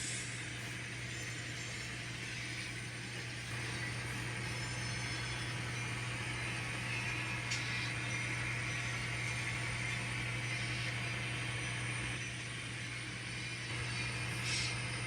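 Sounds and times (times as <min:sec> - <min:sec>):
model train running: 0:00.0 - 0:15.0.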